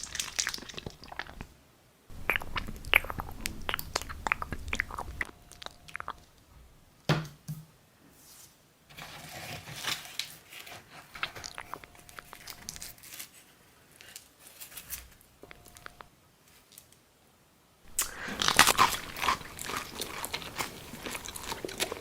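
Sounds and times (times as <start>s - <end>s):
crunchy chewing of pizza: 0.0s - 1.5s, 2.1s - 6.4s, 11.0s - 13.0s, 15.4s - 16.1s, 17.9s - 22.0s.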